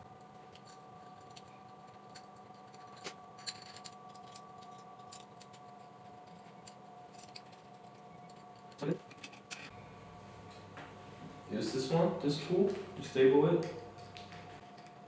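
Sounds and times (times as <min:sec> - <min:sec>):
faint steady hum: 0:00.0 - 0:15.0
small metal parts clicking: 0:00.5 - 0:09.7.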